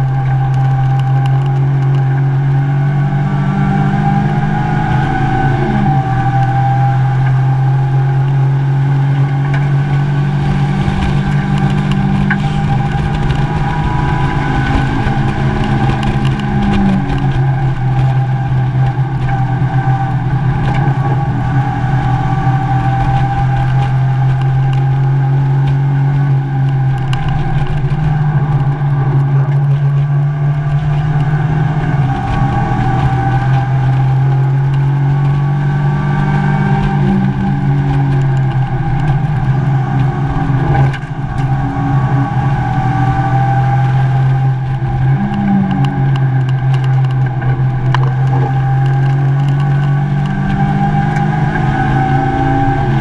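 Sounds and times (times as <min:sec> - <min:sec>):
race car engine running hard: 0:00.0 - 0:53.0
road and wind noise: 0:00.0 - 0:53.0.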